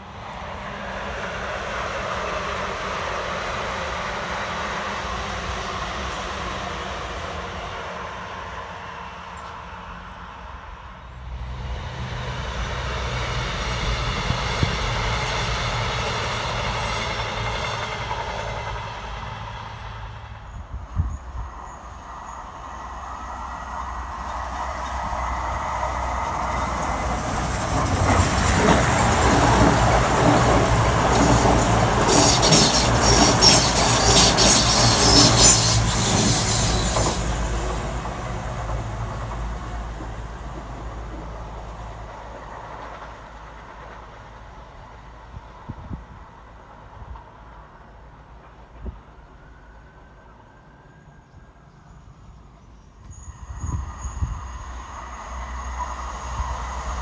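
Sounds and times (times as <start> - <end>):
train passing: 0.0 - 57.0
wheels clattering over rail joints: 26.8 - 41.4.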